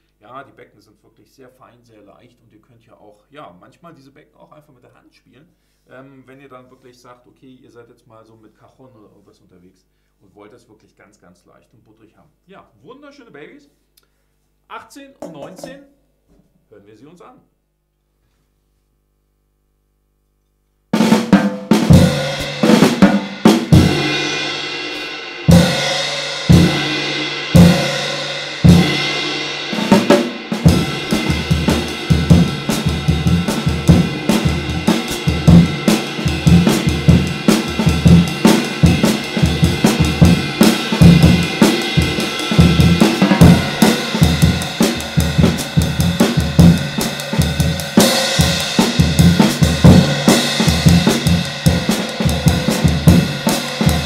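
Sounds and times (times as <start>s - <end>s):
drum kit groove: 15.2s - 15.9s, 20.9s - 54.0s
ride cymbal hits ringing: 21.9s - 54.0s.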